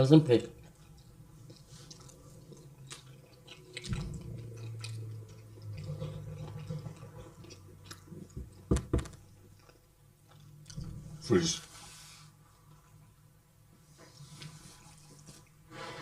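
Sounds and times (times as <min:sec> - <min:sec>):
chewing and wet mouth noises: 0:00.3 - 0:11.0
low hum: 0:00.6 - 0:09.5.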